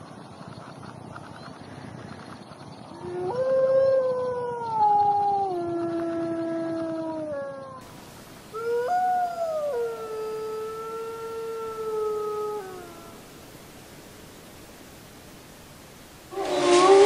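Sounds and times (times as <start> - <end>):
wolf howling: 2.9 - 7.9, 8.5 - 13.2, 16.3 - 17.0.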